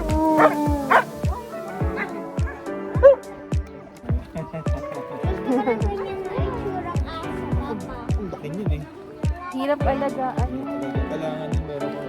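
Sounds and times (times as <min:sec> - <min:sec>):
background music with beat: 0:00.0 - 0:12.0
dog barking: 0:00.4 - 0:03.2.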